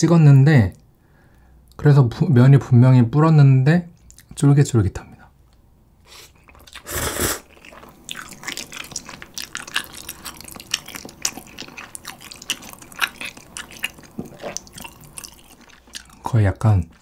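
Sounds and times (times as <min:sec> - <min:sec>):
wet sticky chewing smacks: 0:06.4 - 0:17.0.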